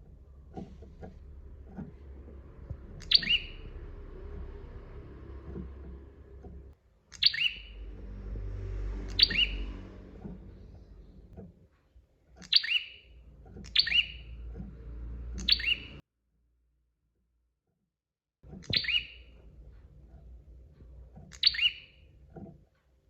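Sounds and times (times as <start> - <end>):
low background rumble: 0.0 - 11.6, 13.0 - 16.0
bird chirping calls: 0.4 - 11.3, 12.4 - 16.0, 18.6 - 19.4, 21.3 - 22.1.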